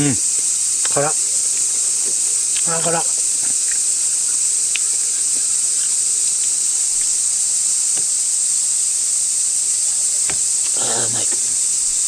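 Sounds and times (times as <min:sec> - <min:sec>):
cicadas shrilling: 0:00.0 - 0:12.0
faint clicks: 0:00.3 - 0:07.2.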